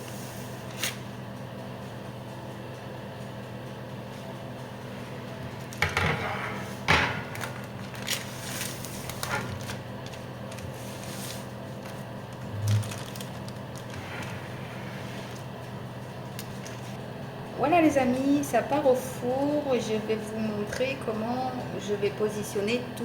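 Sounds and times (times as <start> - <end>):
steady low hum: 0.0 - 23.0
kitchen clicks and knocks: 5.8 - 7.5.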